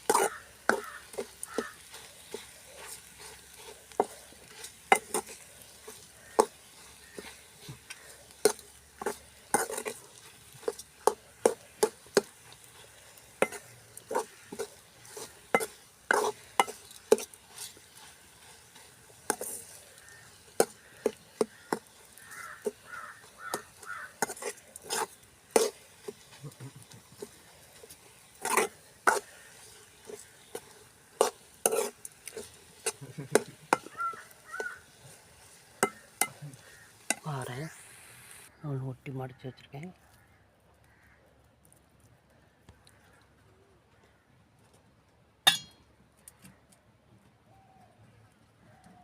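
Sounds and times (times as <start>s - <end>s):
spoon scraping a pan: 0.0s - 37.7s, 45.5s - 45.8s.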